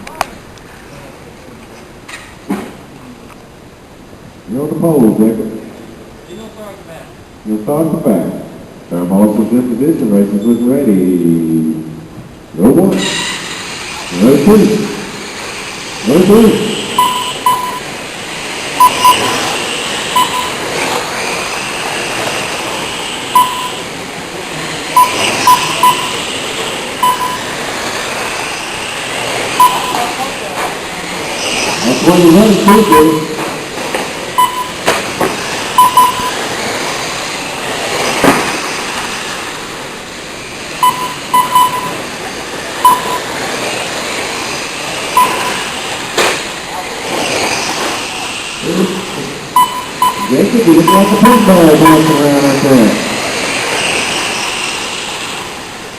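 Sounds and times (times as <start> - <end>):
steady hiss: 0.0 - 55.9
steady rushing noise: 0.0 - 55.9
truck engines whining: 9.4 - 55.9
short electronic beeps: 16.7 - 18.0, 18.8 - 19.4, 20.1 - 20.6, 23.3 - 23.9, 25.0 - 26.3, 27.0 - 27.6, 29.6 - 30.2, 32.4 - 33.3, 34.4 - 34.9, 35.7 - 36.4, 40.8 - 42.1, 42.8 - 43.3, 45.1 - 45.7, 49.6 - 52.4.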